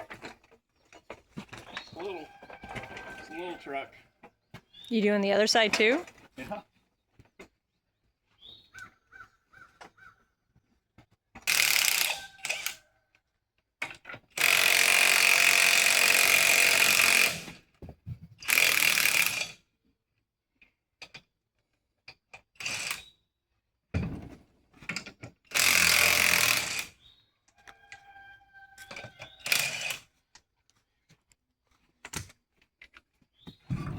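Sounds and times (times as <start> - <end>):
impact wrench running: 14.4 - 17.6, 18.5 - 19.5, 25.5 - 26.9.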